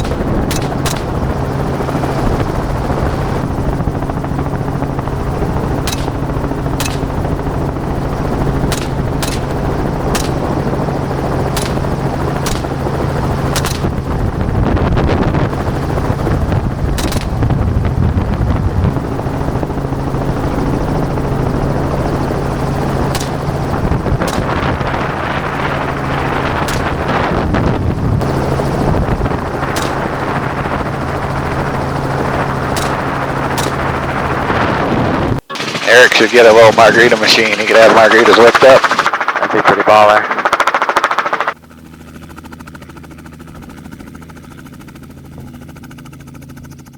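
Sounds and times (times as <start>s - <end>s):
gunshots: 0.0s - 1.4s, 5.8s - 7.5s, 8.6s - 10.8s, 11.4s - 12.9s, 13.5s - 14.0s, 17.0s - 17.5s, 23.1s - 25.8s, 26.4s - 27.4s, 29.6s - 30.7s, 32.7s - 34.0s, 35.5s - 41.6s
helicopter engine and rotor: 0.0s - 46.9s.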